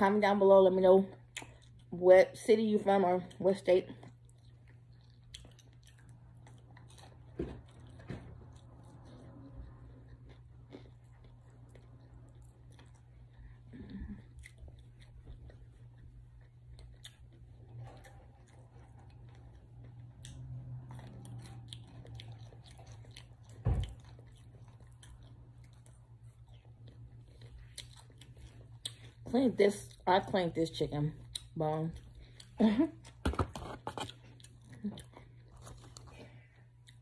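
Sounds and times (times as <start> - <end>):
steady low hum: 0.0 - 37.0
person chewing chicken wings: 4.0 - 30.0, 31.2 - 37.0.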